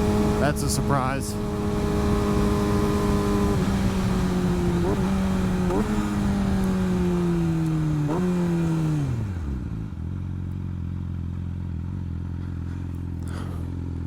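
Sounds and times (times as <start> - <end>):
motorcycle engine slowing to idle: 1.4 - 14.0.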